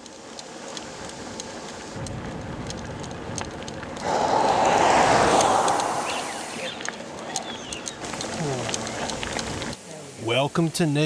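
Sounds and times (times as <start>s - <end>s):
traffic rumble: 0.3s - 9.8s
vehicle passing close by: 4.0s - 7.1s.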